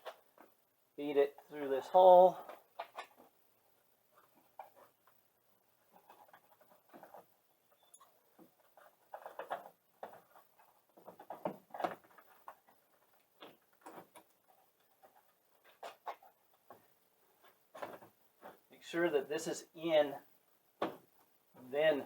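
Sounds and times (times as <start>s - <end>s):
plastic and rubber rubbing and clicking: 0.0s - 1.5s, 2.2s - 18.7s.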